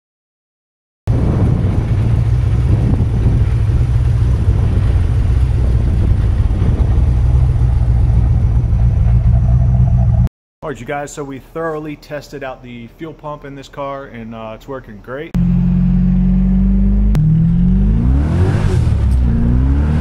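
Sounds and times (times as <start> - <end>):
engine rumbling steadily: 1.1 - 10.3, 15.3 - 20.0.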